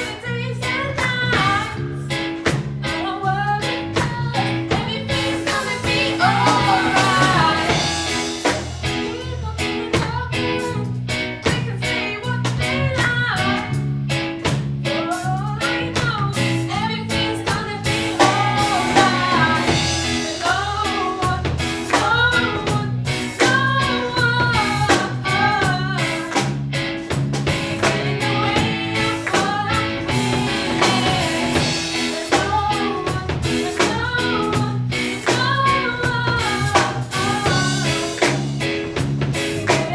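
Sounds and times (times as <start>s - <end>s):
drum kit beat: 0.0s - 39.9s
guitar: 0.0s - 39.9s
person singing: 3.0s - 10.9s, 14.9s - 26.4s, 27.7s - 38.8s.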